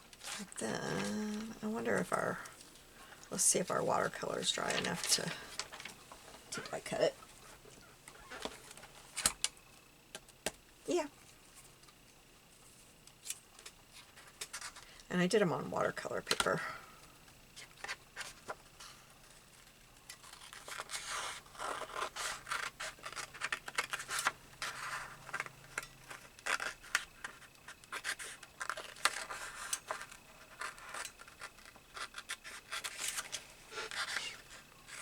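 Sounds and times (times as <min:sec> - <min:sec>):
paper scratching: 0:26.1 - 0:35.0.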